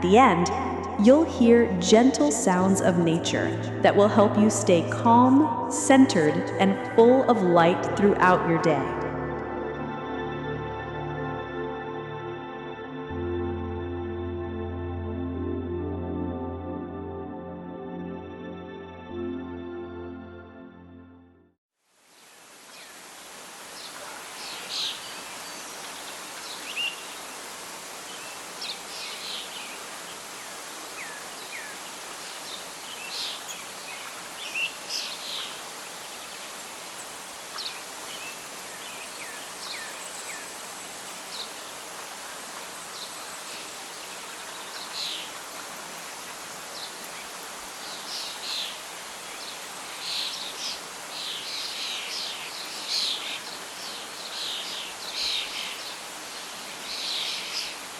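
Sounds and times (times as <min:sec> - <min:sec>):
wind through leaves: 0:00.0 - 0:01.2, 0:21.8 - 0:57.9.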